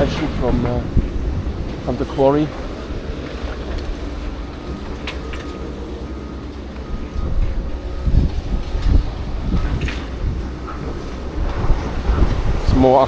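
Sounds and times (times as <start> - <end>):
distant machinery rumbling: 0.0 - 13.0
wind buffeting microphone: 0.0 - 13.0
faint high beeps: 4.6 - 12.2.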